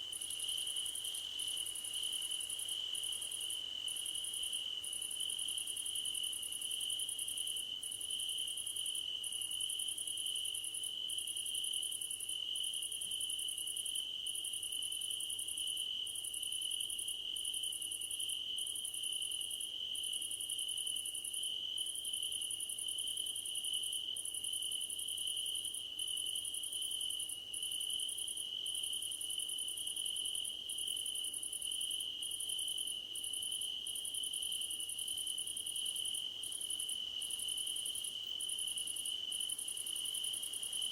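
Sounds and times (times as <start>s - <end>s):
pulsing insect chorus: 24.2s - 40.9s.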